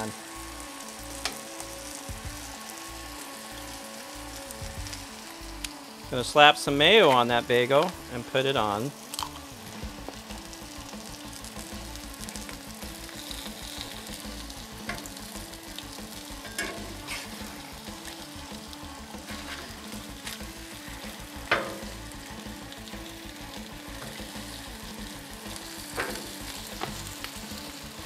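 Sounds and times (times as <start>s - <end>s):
meat sizzling on a griddle: 0.0s - 28.0s
metal spatula scraping griddle: 16.4s - 18.2s, 19.2s - 22.1s, 25.6s - 27.1s.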